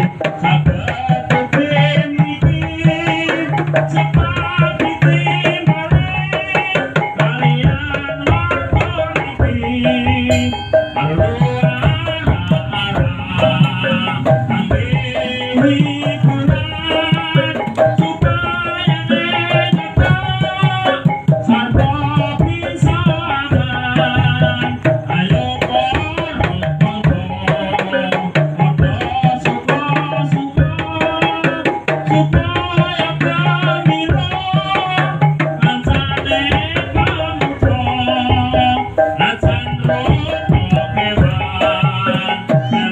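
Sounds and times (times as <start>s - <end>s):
hand drums and percussion: 0.0s - 42.9s
wavering melody line: 8.1s - 29.4s, 34.5s - 42.9s.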